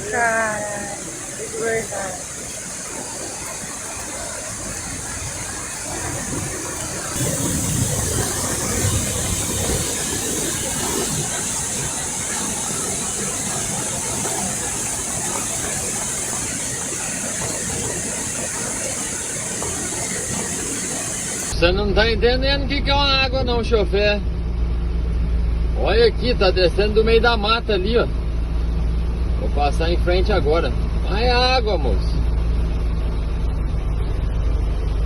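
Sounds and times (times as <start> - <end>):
floodwater rushing: 0.0 - 21.6
vehicle engine running: 0.0 - 35.0.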